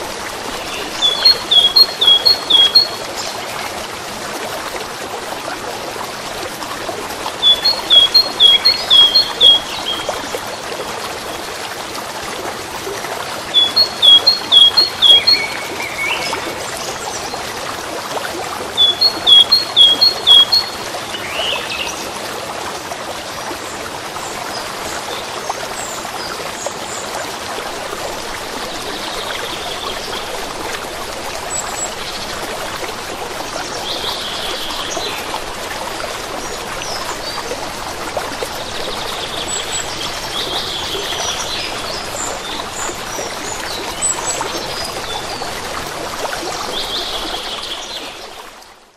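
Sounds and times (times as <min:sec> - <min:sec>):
water trickling: 0:00.0 - 0:48.9
songbird singing: 0:00.5 - 0:03.4, 0:07.4 - 0:10.3, 0:13.5 - 0:17.4, 0:18.8 - 0:22.0.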